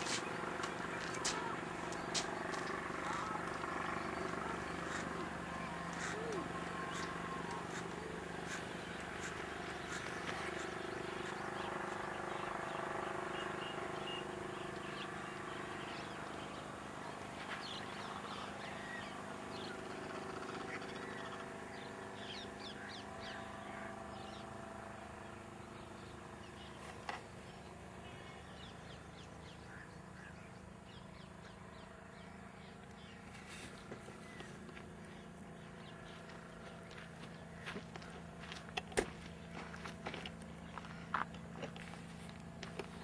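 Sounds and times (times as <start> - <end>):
birds calling: 0.0 - 43.0
steady low hum: 0.0 - 43.0.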